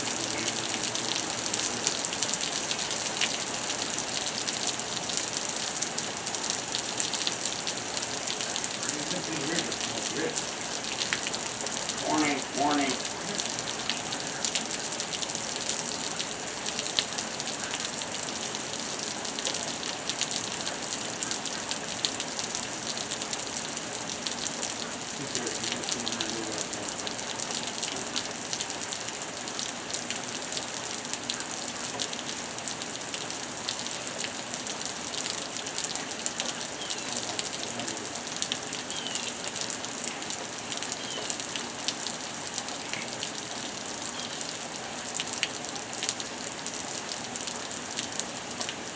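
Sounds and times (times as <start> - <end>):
heavy rain falling: 0.0 - 48.9
raindrops ticking on surfaces: 0.0 - 48.9.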